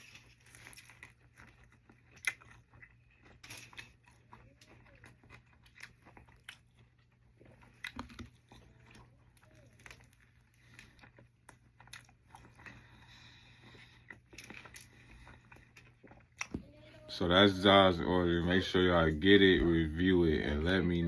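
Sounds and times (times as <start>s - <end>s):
faint biting and chewing: 0.0s - 17.1s
toasted bread crunching: 0.0s - 20.5s.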